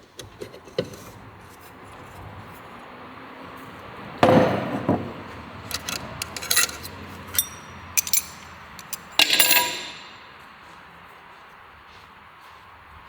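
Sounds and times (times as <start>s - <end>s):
light metal clinks: 5.6s - 10.4s
loud ringing metal clank: 5.7s - 10.4s.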